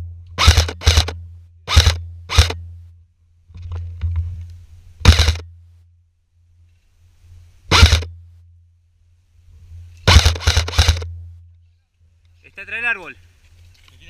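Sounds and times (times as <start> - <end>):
steady low hum: 0.0 - 12.4
airsoft gun shots: 0.4 - 2.6, 5.0 - 5.4, 7.7 - 8.1, 10.0 - 11.2.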